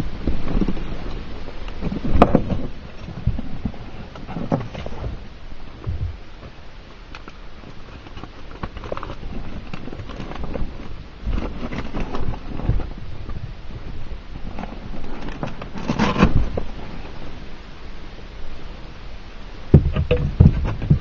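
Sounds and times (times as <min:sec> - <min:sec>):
knocks and rattles: 0:19.7 - 0:21.0
thumps: 0:19.7 - 0:21.0.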